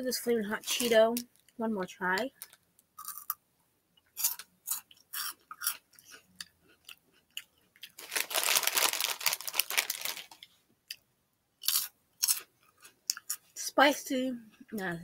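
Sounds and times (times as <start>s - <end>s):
crunchy snack being chewed: 2.4s - 3.4s, 4.1s - 10.5s, 11.6s - 13.5s.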